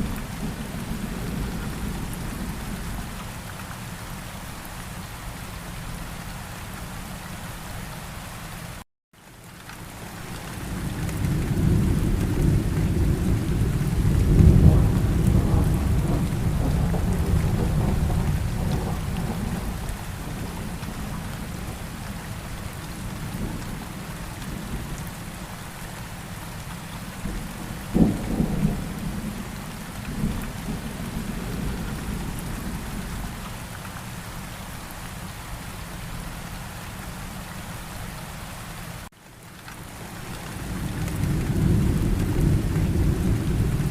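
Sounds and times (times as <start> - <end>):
steady rain: 0.0 - 43.9
thunder rumble: 10.7 - 25.0, 27.2 - 33.4, 40.4 - 43.9
thunder clap: 11.1 - 21.2.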